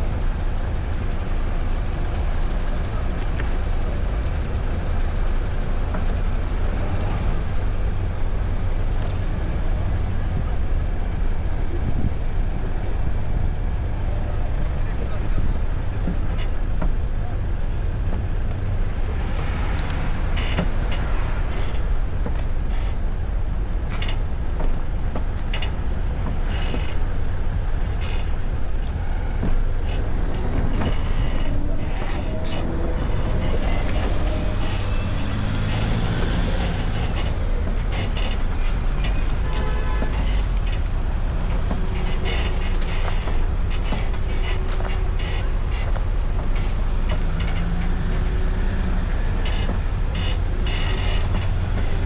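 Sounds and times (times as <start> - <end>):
road and traffic rumble: 0.0 - 52.0
vehicle engines: 0.0 - 52.0.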